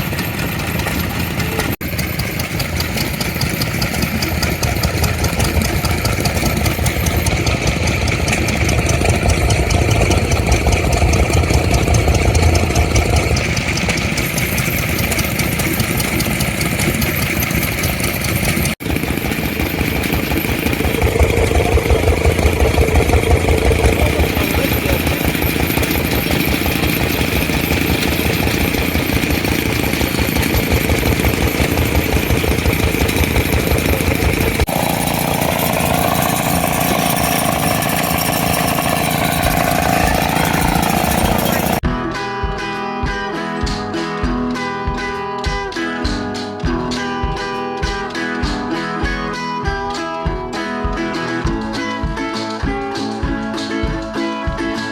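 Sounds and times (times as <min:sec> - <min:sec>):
engine idling: 0:00.0 - 0:41.9.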